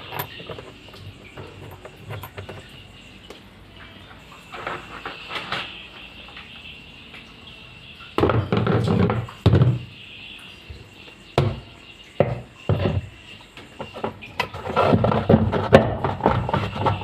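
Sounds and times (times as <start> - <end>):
machine parts knocking and clattering: 0.0 - 2.8.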